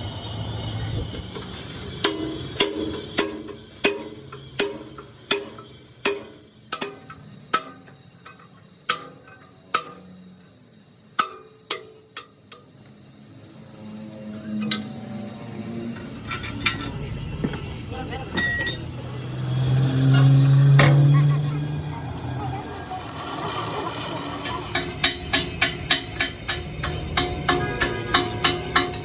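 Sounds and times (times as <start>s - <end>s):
hammer striking metal: 1.4s - 10.2s, 11.1s - 12.8s, 24.3s - 29.0s.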